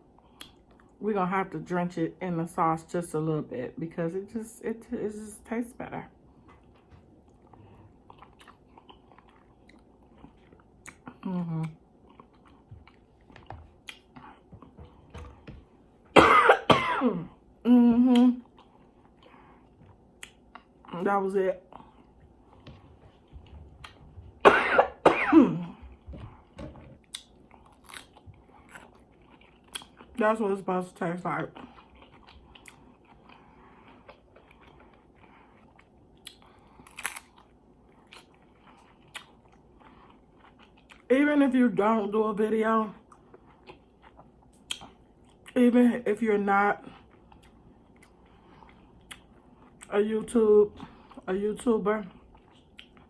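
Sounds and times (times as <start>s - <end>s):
chewing food with crunches: 0.0s - 1.0s, 6.1s - 16.0s, 18.1s - 24.4s, 25.7s - 42.0s, 42.9s - 45.8s, 46.6s - 53.0s
woman coughing: 16.2s - 17.3s, 24.4s - 25.8s
wet mouth clicks: 44.6s - 44.9s.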